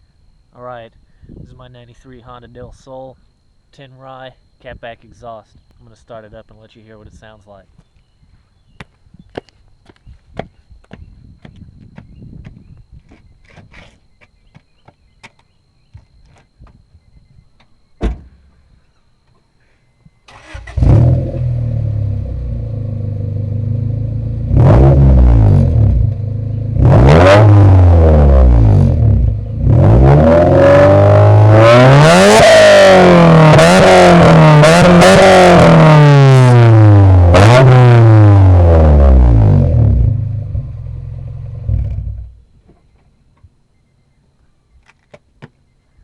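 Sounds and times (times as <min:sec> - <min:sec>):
car engine revving: 0:20.3 - 0:42.4.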